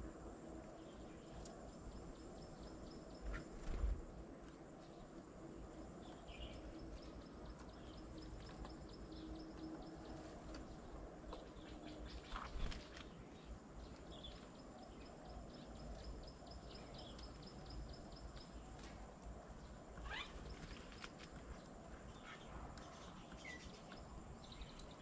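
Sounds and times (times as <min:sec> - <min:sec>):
bird chirps: 0:20.0 - 0:20.9.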